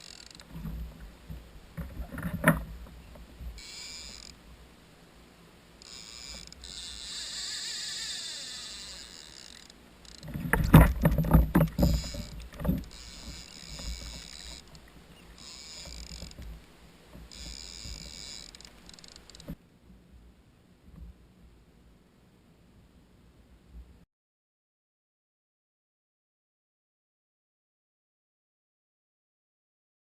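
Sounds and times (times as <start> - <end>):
knocks and thuds against hull: 10.2 - 14.3.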